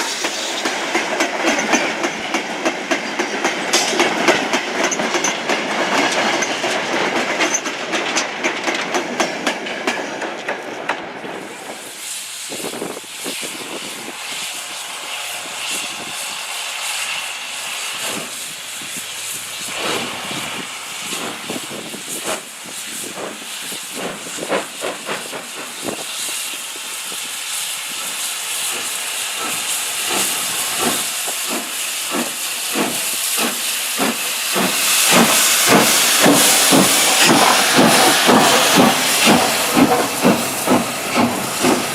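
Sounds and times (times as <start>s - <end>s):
steam locomotive hissing: 0.0s - 41.9s
locomotive short beats: 29.4s - 41.9s.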